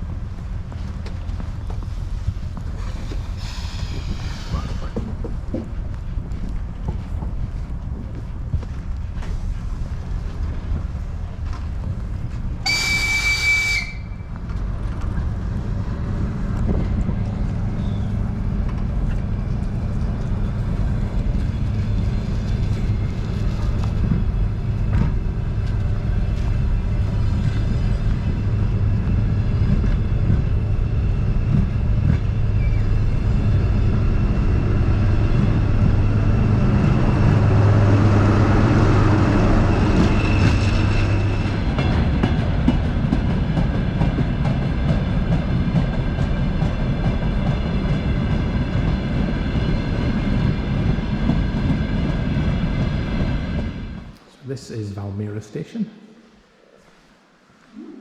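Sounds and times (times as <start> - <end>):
train rumbling: 0.0 - 55.2
train horn blast: 12.6 - 14.2.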